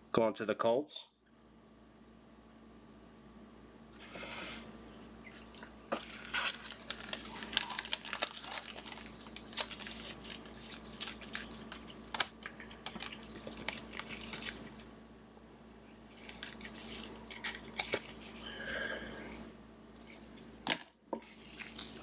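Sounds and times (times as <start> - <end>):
plastic and card crinkling: 5.9 - 14.9, 16.0 - 18.5, 20.0 - 22.0.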